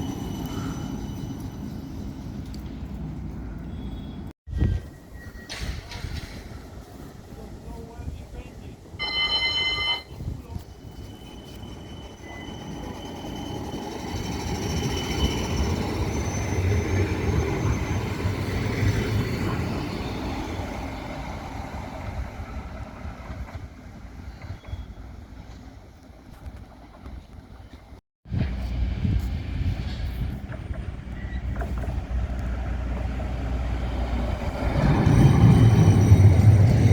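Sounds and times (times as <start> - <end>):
tram passing with rumble: 0.0 - 36.9
high whine of tram: 9.0 - 36.9.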